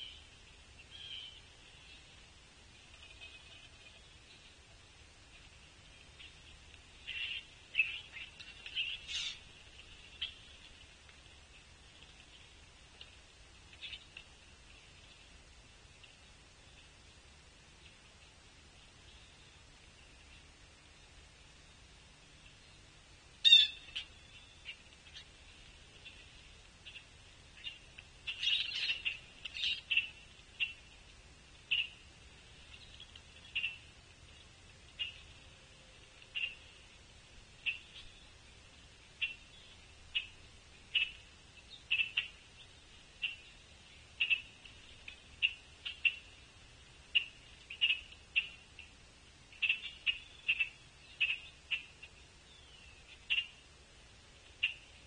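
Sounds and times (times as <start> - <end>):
bird chip calls: 0.0 - 2.0, 7.0 - 9.5, 10.1 - 10.5, 23.4 - 25.4, 26.0 - 31.0, 31.7 - 32.0, 32.7 - 33.9, 34.9 - 35.3, 36.2 - 36.8, 37.6 - 38.3, 39.2 - 46.5, 47.1 - 48.9, 49.5 - 53.6, 54.6 - 55.0
short sharp bird calls: 7.1 - 9.4.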